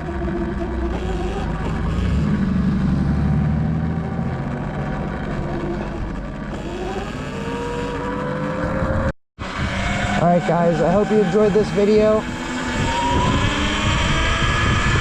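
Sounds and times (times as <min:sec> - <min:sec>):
low engine rumble: 0:00.0 - 0:09.1
electric motor whine rising: 0:00.0 - 0:15.0
wind noise: 0:08.5 - 0:10.4, 0:11.9 - 0:15.0.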